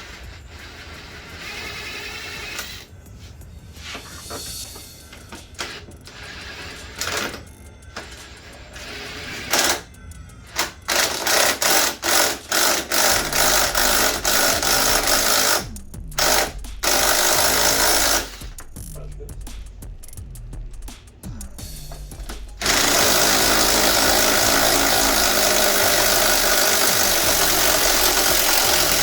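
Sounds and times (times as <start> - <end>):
hand tool rattling bursts: 10.5 - 19.0, 21.3 - 29.0.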